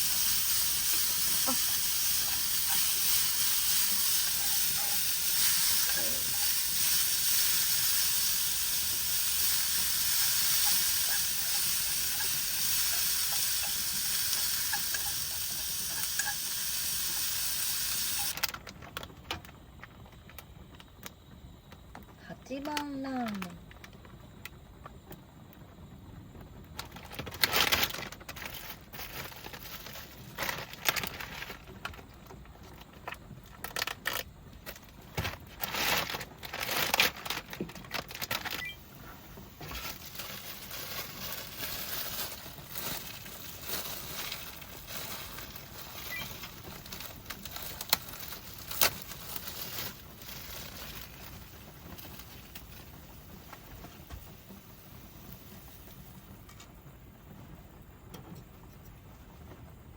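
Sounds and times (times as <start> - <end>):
plastic wrapper crinkling: 0.0 - 19.5, 26.8 - 54.1.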